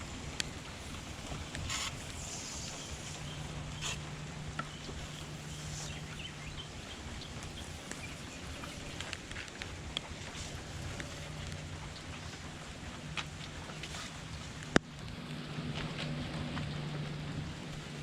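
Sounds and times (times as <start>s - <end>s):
steady rain falling: 0.0s - 18.0s
short hissing bursts: 0.7s - 4.1s.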